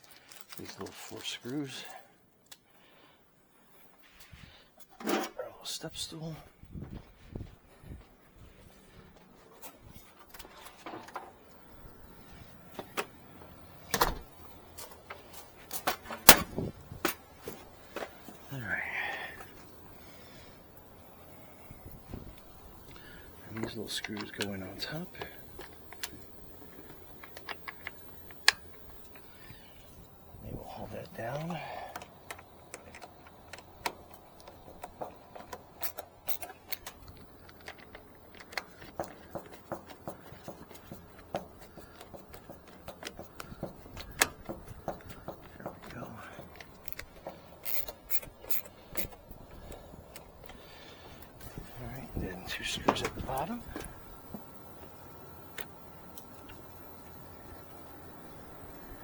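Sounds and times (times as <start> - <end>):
clicks of hard objects handled: 21.9 - 29.6, 31.9 - 51.7.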